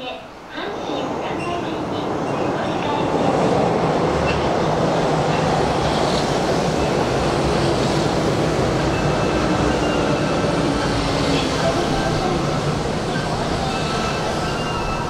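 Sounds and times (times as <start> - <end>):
train wheels rumbling on track: 0.5 - 15.0.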